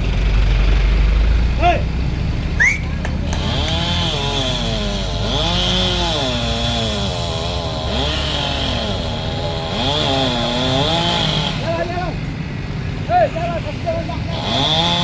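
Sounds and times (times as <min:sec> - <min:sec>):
chainsaw cutting at high revs: 0:02.7 - 0:13.1, 0:13.7 - 0:15.0.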